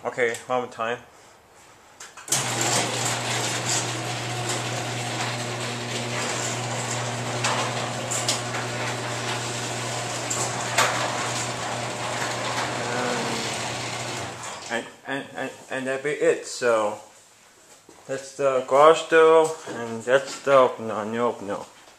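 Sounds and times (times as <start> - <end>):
door rollers clicking and rattling: 2.2 - 14.7
garage door opener motor hum: 2.3 - 14.7.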